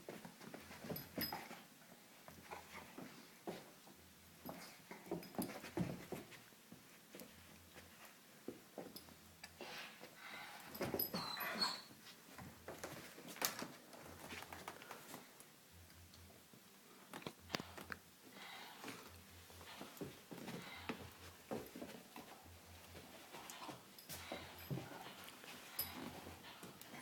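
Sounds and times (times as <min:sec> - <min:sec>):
dog whining: 0:11.1 - 0:12.0
rustling: 0:16.9 - 0:27.0.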